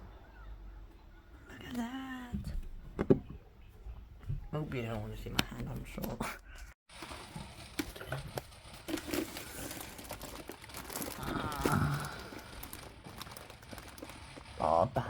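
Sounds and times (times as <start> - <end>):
rustling handling noise: 6.9 - 15.0
person groaning: 11.1 - 12.6.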